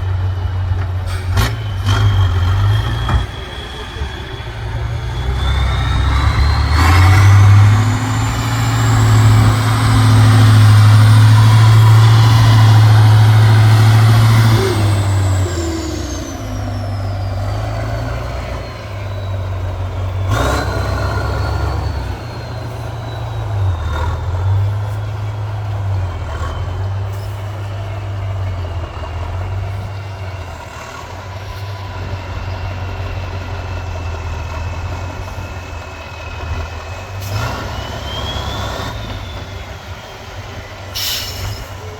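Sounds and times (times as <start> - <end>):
heavy truck engine working hard: 0.0 - 41.9
high whistle: 37.3 - 41.9.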